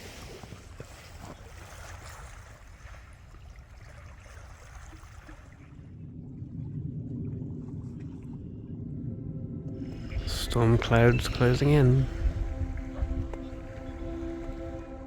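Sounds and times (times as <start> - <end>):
lake water: 0.0 - 15.0
wind: 0.0 - 15.0.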